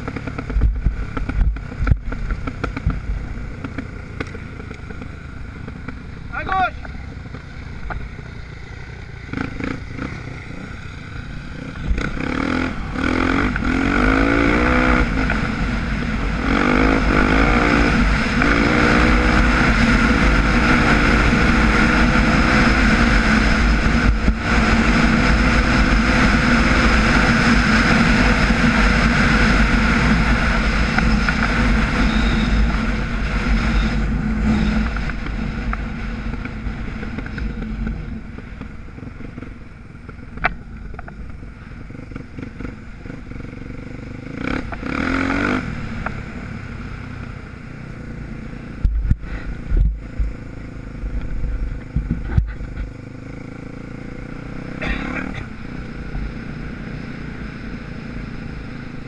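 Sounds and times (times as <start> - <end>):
wind rush on microphone: 0.0 - 3.4, 48.7 - 50.4, 51.0 - 52.9
dirt bike engine accelerating: 0.0 - 59.0.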